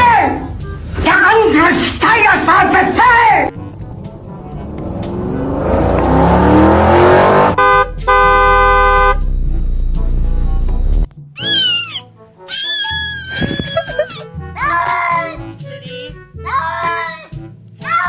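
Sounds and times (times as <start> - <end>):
car engine revving: 3.6 - 11.1
car horn honking: 7.0 - 11.0
cat meowing: 11.4 - 14.2.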